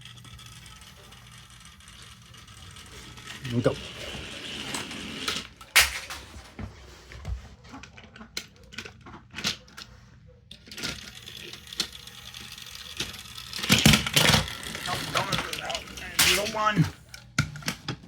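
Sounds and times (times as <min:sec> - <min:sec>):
faint toy motor hum: 0:00.0 - 0:05.6, 0:09.5 - 0:17.7
plastic clicks and clacks: 0:07.6 - 0:18.0.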